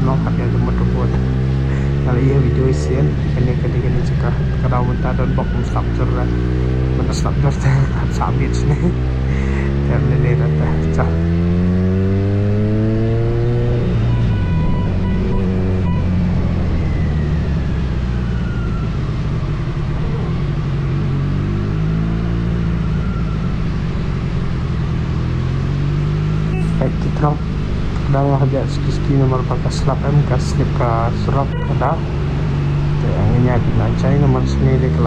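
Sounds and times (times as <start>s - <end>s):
motorcycle engine revving: 0.0s - 35.0s
wind and road noise: 0.0s - 35.0s.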